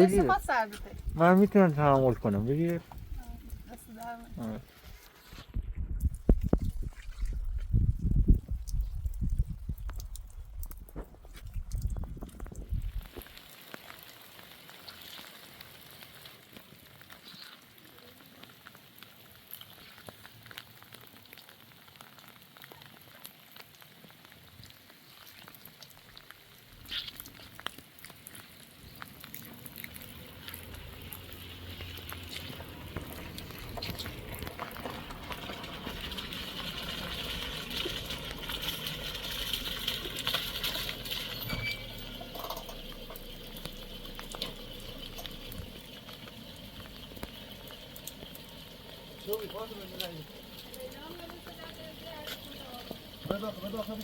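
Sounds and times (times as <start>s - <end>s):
rain falling: 0.0s - 5.4s, 7.4s - 54.0s.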